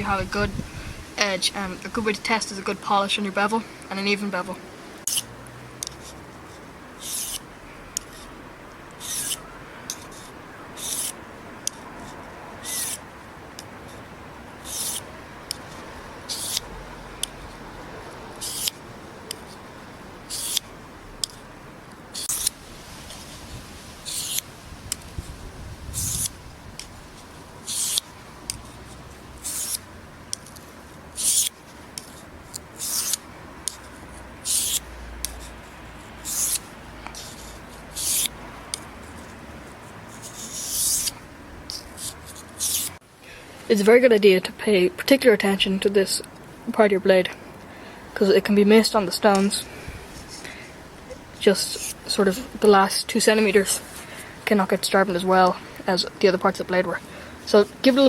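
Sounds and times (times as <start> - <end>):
knife scraping on whetstone: 5.0 - 6.2, 7.0 - 7.4, 9.0 - 11.2, 12.0 - 13.0, 14.6 - 15.1, 16.3 - 16.6, 18.4 - 18.8, 20.3 - 20.6, 22.2 - 22.6, 24.0 - 24.4, 26.0 - 26.3, 27.6 - 28.1, 28.9 - 30.5, 31.2 - 33.8, 34.4 - 35.6, 36.2 - 38.3, 40.2 - 43.0.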